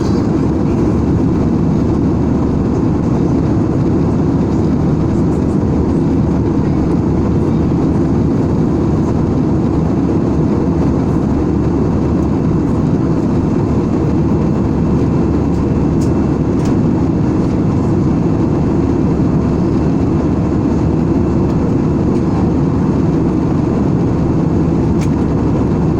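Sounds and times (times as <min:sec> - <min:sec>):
airliner cabin noise: 0:00.0 - 0:25.9.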